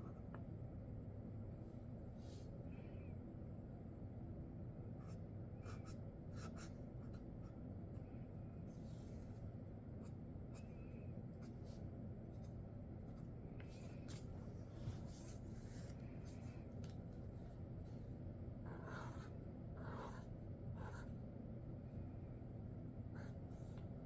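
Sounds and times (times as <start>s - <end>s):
marker drawing on paper: 5.0s - 7.2s, 18.7s - 21.1s.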